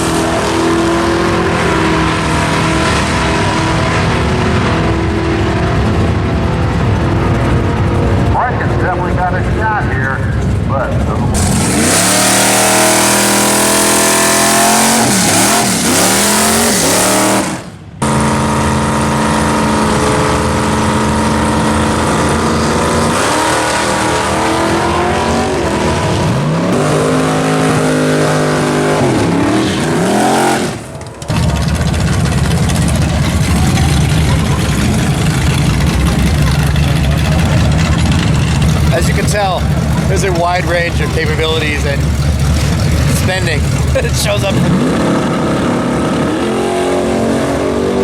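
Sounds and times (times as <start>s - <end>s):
race car engines revving: 0.0s - 48.0s
rough low engine rumble: 0.0s - 48.0s.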